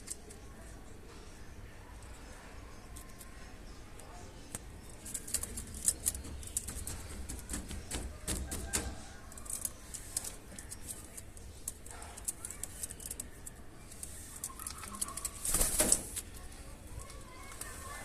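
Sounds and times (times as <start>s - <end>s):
pigeons flurry: 14.4s - 16.3s.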